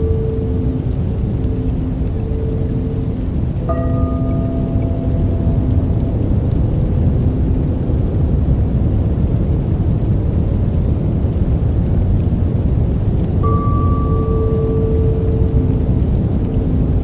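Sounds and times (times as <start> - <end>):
soft held tones: 0.0 - 6.8, 13.4 - 17.0
low rushing noise: 0.0 - 10.5, 13.2 - 17.0.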